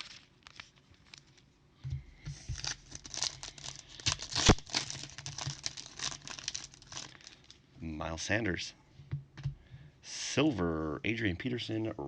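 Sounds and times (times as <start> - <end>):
cards and plastic wrapping rustling: 0.0 - 1.5, 2.2 - 7.6.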